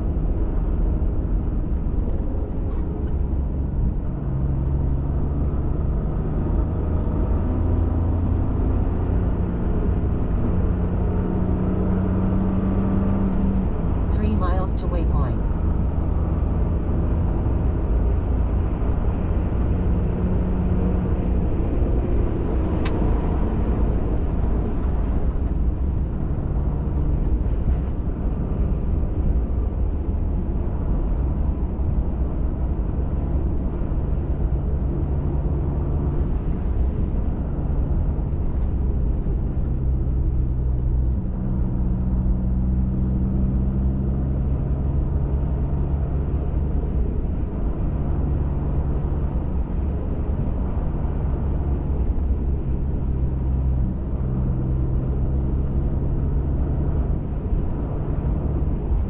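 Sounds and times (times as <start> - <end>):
truck engine and tyres rumbling: 0.0 - 59.0.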